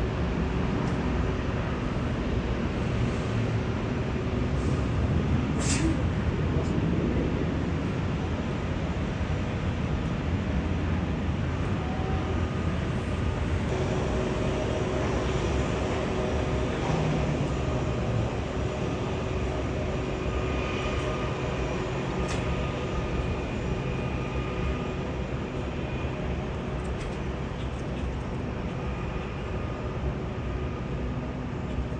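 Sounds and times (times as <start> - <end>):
moving vehicle rumble: 0.2 - 31.9.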